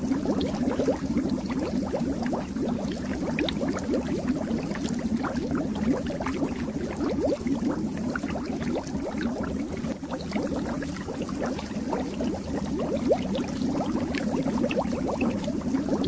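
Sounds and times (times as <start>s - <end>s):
fish tank water bubbling: 0.0s - 16.0s.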